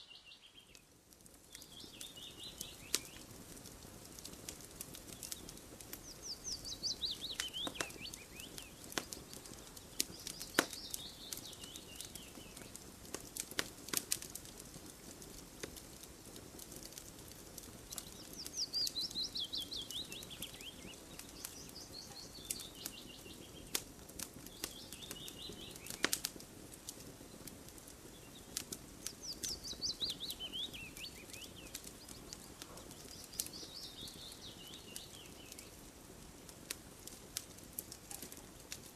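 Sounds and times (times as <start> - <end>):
songbird singing: 0.0 - 3.3, 5.0 - 12.8, 17.6 - 23.8, 24.4 - 26.2, 27.2 - 35.9
campfire crackling and popping: 0.0 - 38.9.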